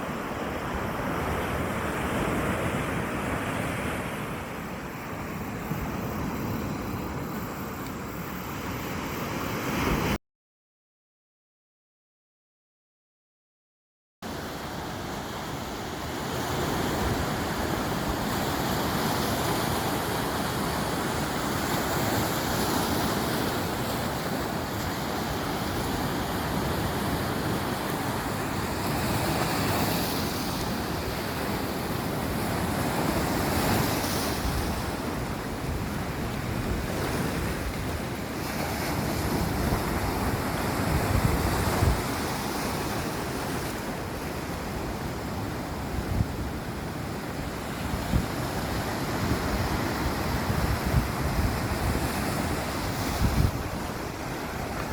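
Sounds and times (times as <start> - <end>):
sea waves washing ashore: 0.0 - 10.2, 14.2 - 54.9
wind buffeting microphone: 16.1 - 43.3, 47.4 - 54.9.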